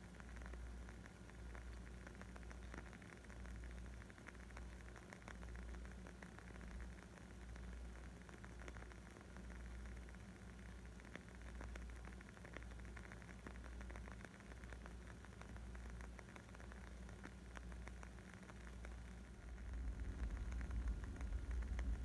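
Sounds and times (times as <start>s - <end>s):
wood fire crackling: 0.1s - 22.0s
low rumble: 19.2s - 22.0s.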